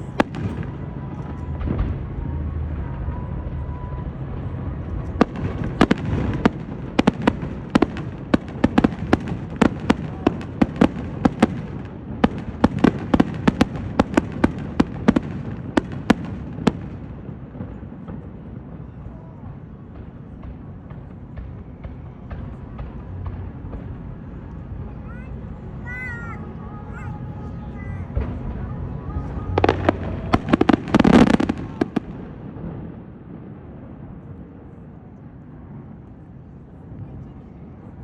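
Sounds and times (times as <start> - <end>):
fireworks bangs and cracks: 0.0 - 38.0.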